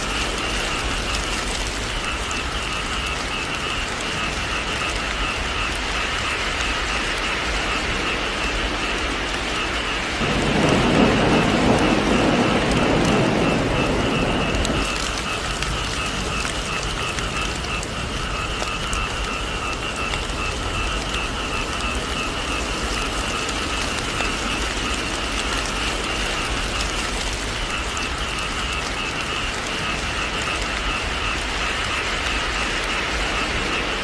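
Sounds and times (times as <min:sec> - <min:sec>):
heavy rain falling: 0:00.0 - 0:34.0
thunder rumble: 0:07.5 - 0:34.0.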